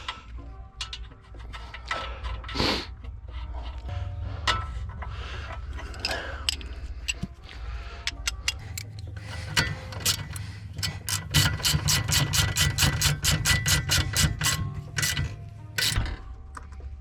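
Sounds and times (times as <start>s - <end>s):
ratchet wrench clicking: 5.9s - 7.3s, 8.0s - 16.2s.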